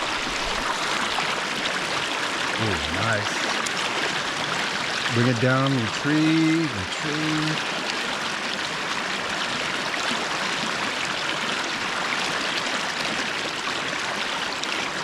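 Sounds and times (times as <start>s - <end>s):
river rushing over rocks: 0.0s - 5.5s.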